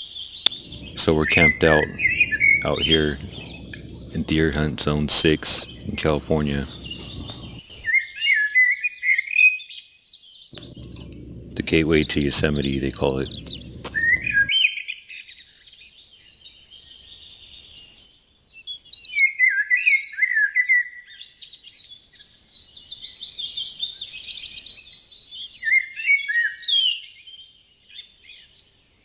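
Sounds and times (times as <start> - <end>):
songbirds chirping and singing: 0.4 - 7.8, 10.5 - 14.5.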